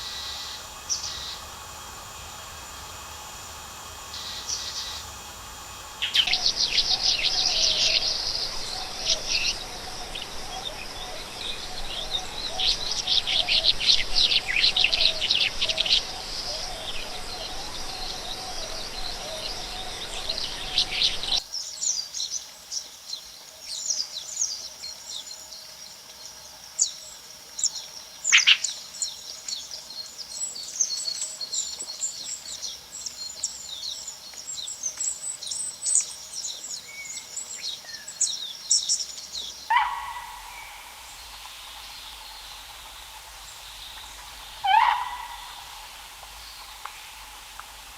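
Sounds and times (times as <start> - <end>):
faint hum of insects: 0.0 - 47.9
birds chirping and calling: 38.7 - 41.3, 44.5 - 45.6.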